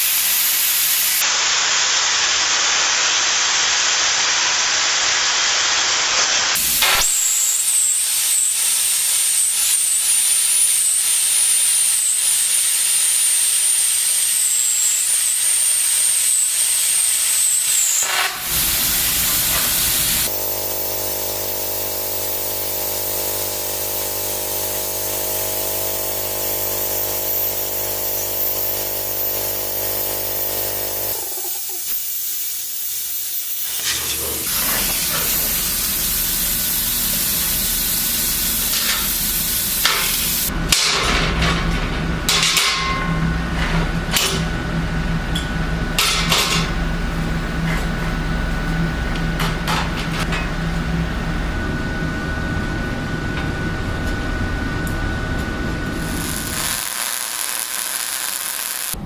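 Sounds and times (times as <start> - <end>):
plasma cutter hissing: 0.0 - 40.5, 55.8 - 59.0
high wavering whine: 17.3 - 35.2, 51.2 - 59.0
steady hum: 18.2 - 36.7, 50.0 - 59.0.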